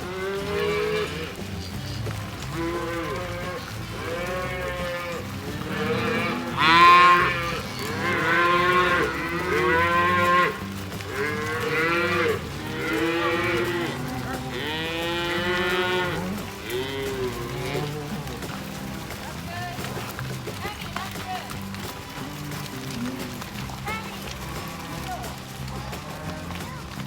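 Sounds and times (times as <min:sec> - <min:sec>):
cattle mooing: 0:00.0 - 0:20.0.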